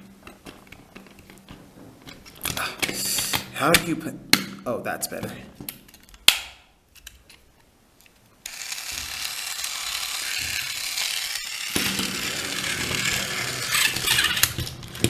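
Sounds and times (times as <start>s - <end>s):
toy train motor whirring: 8.4s - 14.7s.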